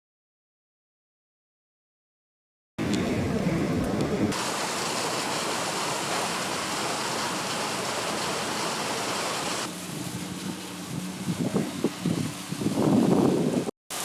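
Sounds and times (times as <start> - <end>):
steady rain hiss: 4.3 - 14.0.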